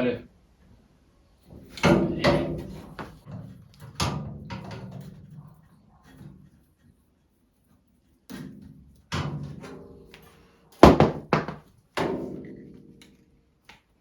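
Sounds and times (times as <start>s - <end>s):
knocks on steel door: 10.8s - 11.6s.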